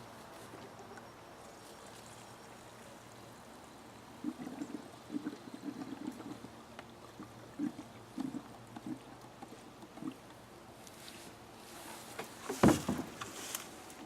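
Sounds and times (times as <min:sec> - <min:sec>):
fuel glugging into tank: 0:04.2 - 0:10.4.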